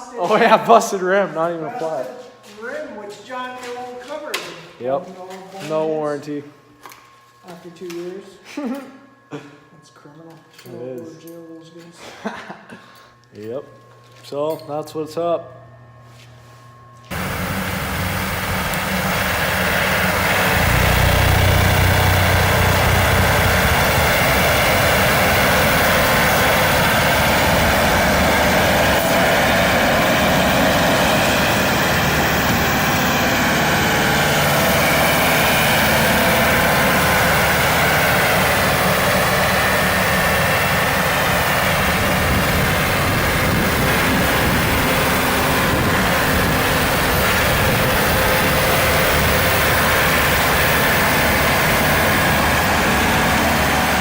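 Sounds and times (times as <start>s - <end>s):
tractor diesel engine running: 17.1s - 54.0s.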